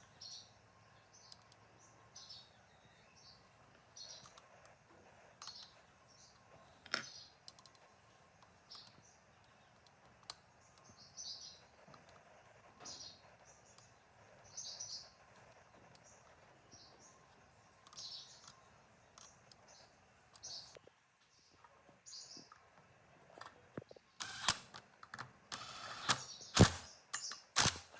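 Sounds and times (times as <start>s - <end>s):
sharp clicks: 1.2s - 1.7s, 4.0s - 4.8s, 5.4s - 14.0s, 23.4s - 27.9s.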